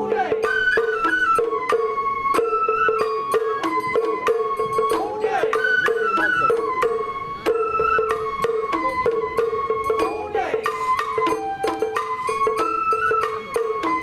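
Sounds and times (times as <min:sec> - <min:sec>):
bamboo flute melody: 0:00.0 - 0:14.0
drum and percussion strikes: 0:00.0 - 0:14.0.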